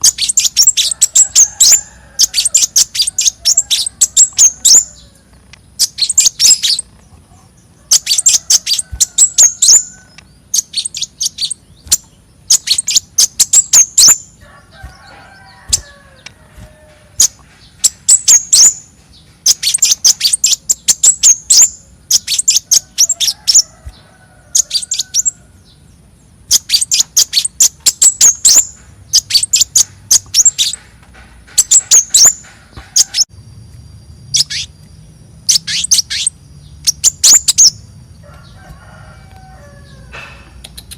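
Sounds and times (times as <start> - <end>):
bird singing sharp chirps: 0.0 - 7.0, 7.9 - 30.8, 34.1 - 38.6.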